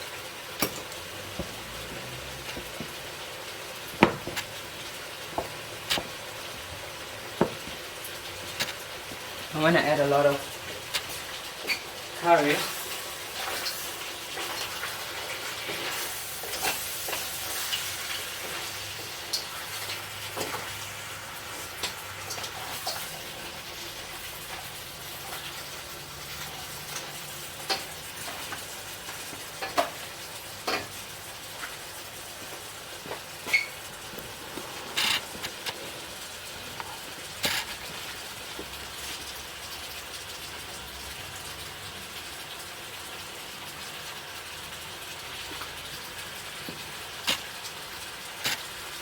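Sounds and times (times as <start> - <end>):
rice sizzling in a pan: 0.0 - 49.0
spoon scraping a pan: 3.9 - 11.9, 33.1 - 38.3.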